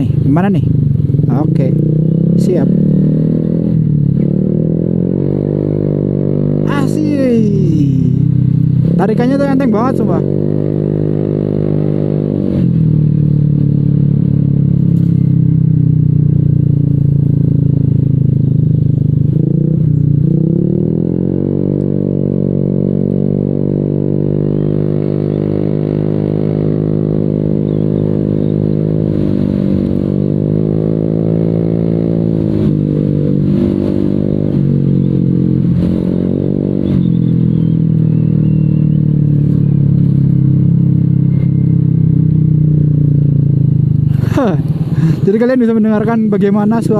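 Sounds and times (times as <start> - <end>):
scooter engine exhaust note: 7.7 - 45.9.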